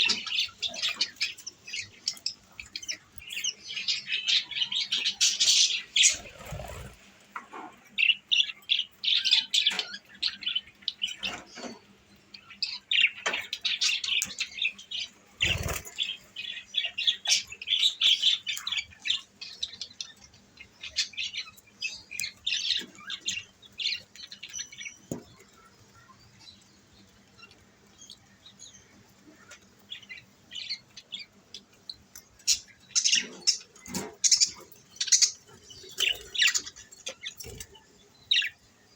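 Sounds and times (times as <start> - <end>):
budgerigars chirping: 0.0 - 7.0, 12.6 - 19.2.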